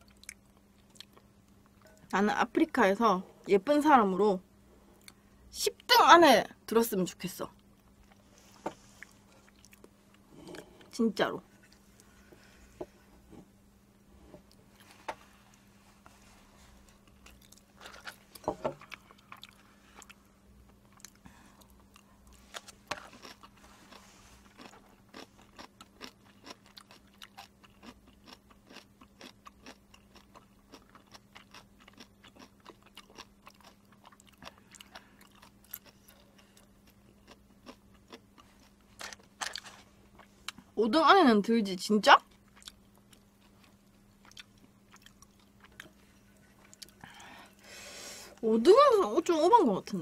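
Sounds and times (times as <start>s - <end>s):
faint steady hum: 0.0s - 50.0s
chewing noodles: 16.9s - 40.6s, 42.2s - 47.2s.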